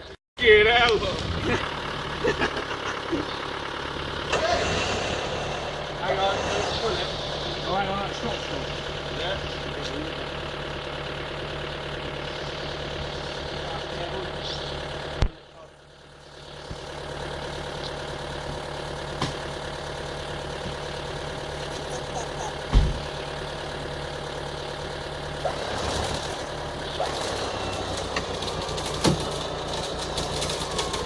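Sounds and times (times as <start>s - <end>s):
car engine idling: 0.0s - 31.0s
clicks and crackles: 27.0s - 31.0s.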